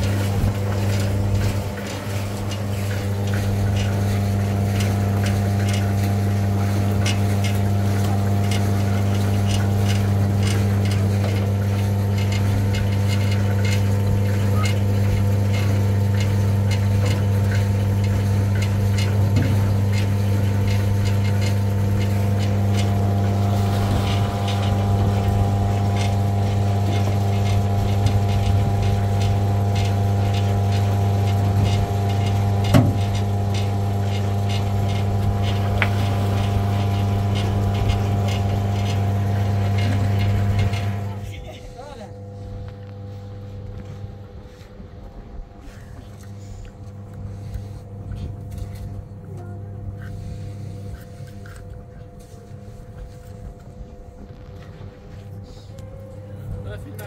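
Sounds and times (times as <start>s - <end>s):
small engine humming and ticking: 0.0s - 57.0s.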